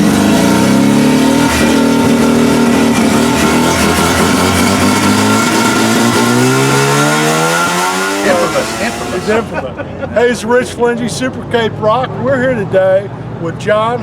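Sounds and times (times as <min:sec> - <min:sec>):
rotary engine revving: 0:00.0 - 0:09.6.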